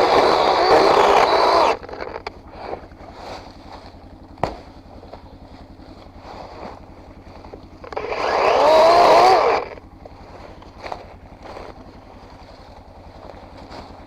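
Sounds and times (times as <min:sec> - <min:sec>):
vehicle engine revving: 0:00.0 - 0:14.0.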